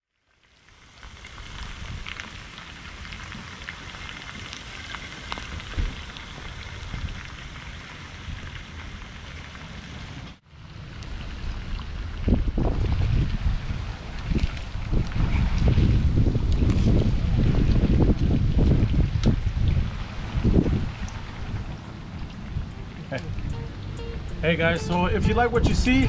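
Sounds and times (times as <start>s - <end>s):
chicken frying in hot oil: 0.1s - 20.6s
wind buffeting microphone: 5.4s - 8.7s, 10.8s - 26.0s.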